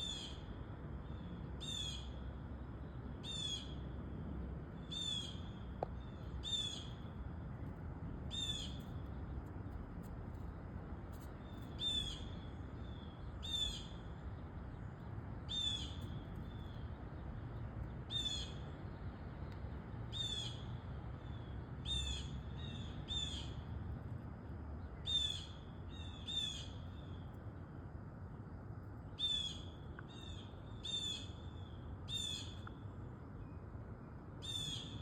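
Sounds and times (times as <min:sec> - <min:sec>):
blue jay calling: 0:00.0 - 0:00.4, 0:01.6 - 0:02.1, 0:03.2 - 0:03.8, 0:04.8 - 0:07.0, 0:08.3 - 0:08.9, 0:11.7 - 0:14.0, 0:15.5 - 0:16.8, 0:18.1 - 0:18.7, 0:20.1 - 0:20.6, 0:21.8 - 0:23.6, 0:25.0 - 0:27.2, 0:29.1 - 0:32.6, 0:34.4 - 0:35.0.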